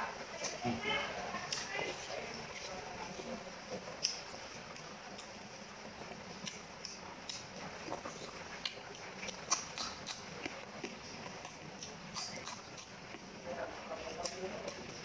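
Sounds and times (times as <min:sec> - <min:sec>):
person chewing food: 0:01.4 - 0:13.4, 0:14.0 - 0:15.0
sharp mouth clicks: 0:08.6 - 0:12.9.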